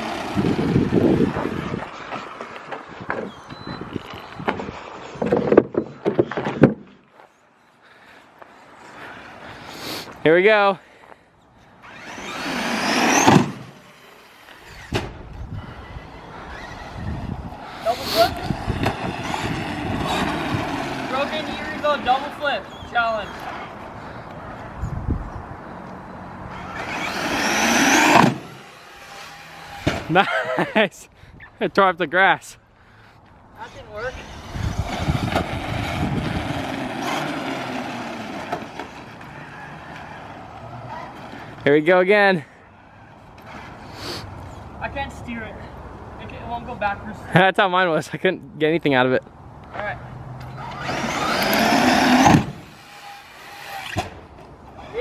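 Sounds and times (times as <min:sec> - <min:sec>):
wheels rolling and scuffing: 0:00.0 - 0:07.4, 0:33.2 - 0:41.6
electric motor whine: 0:11.8 - 0:14.9, 0:26.5 - 0:30.1, 0:50.5 - 0:54.2
electric toy truck motor whine: 0:11.8 - 0:15.0, 0:15.8 - 0:21.4, 0:26.5 - 0:29.9, 0:34.2 - 0:40.4, 0:50.5 - 0:54.1.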